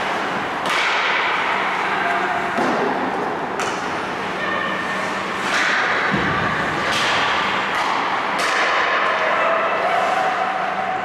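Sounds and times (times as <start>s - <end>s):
sharp knocks of sticks and puck: 0.6s - 1.5s, 2.6s - 3.9s, 5.4s - 9.2s.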